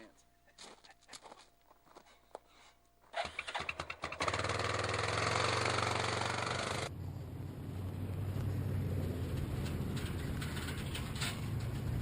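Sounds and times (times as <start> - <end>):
engine starter cranking: 3.1 - 6.9
engine idling: 3.2 - 12.0.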